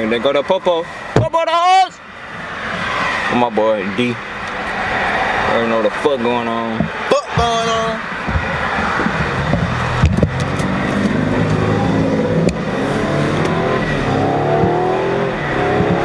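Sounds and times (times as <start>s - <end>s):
car engine accelerating: 7.9s - 16.0s.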